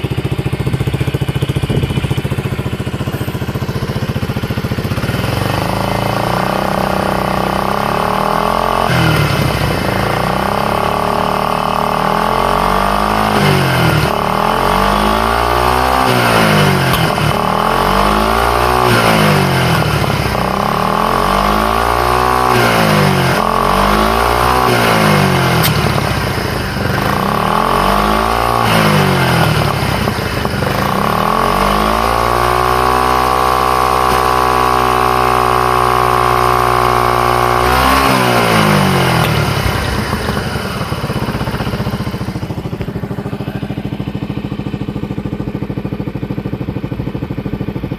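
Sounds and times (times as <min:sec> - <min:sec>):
scooter engine revving: 0:00.0 - 0:47.9.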